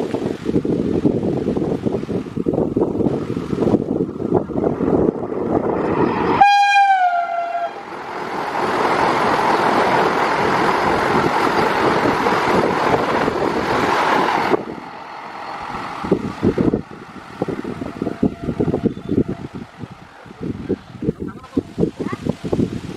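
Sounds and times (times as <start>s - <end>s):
train rushing past: 0.0s - 22.9s
windy rumble: 0.0s - 22.9s
train horn: 6.4s - 7.8s, 18.0s - 19.4s.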